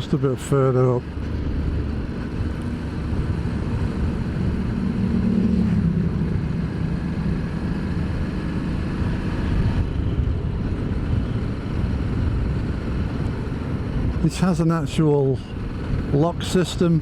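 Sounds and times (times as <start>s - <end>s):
motorcycle engine running: 1.0s - 14.2s.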